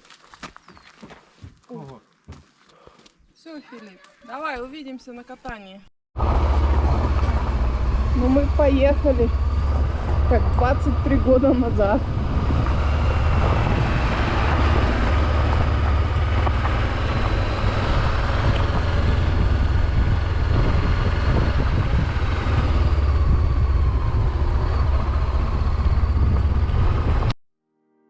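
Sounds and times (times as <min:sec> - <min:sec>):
motorcycle engine: 0:06.2 - 0:27.4
wind rush on microphone: 0:06.8 - 0:27.4.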